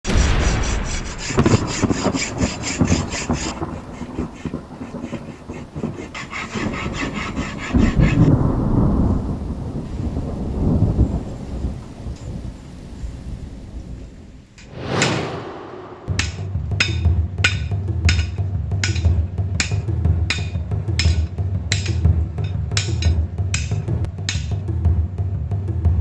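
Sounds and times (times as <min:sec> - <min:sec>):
sawing or filing metal: 0:00.1 - 0:05.2, 0:05.8 - 0:08.3
low rumble: 0:14.7 - 0:16.8.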